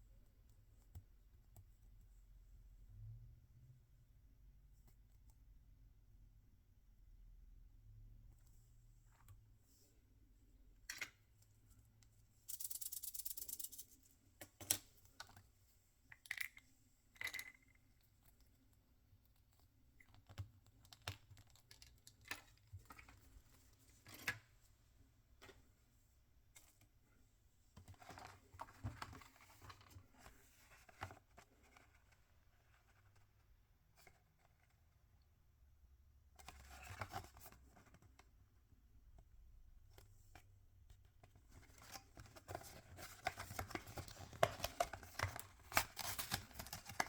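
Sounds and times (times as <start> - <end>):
plastic and paper crinkling: 42.4 - 47.0.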